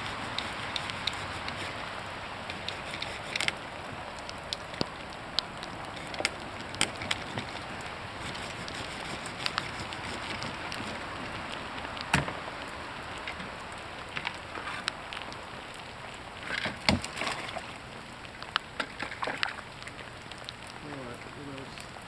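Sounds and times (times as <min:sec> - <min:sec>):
branches knocking and snapping: 0:00.0 - 0:12.4, 0:16.4 - 0:17.7
heavy rain hissing: 0:00.0 - 0:17.0, 0:19.6 - 0:22.0.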